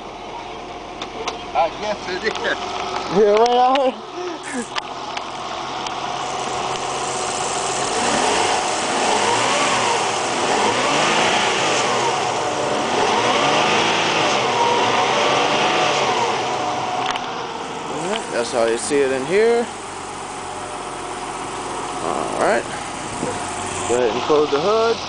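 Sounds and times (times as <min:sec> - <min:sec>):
car engine revving: 0:04.4 - 0:25.0.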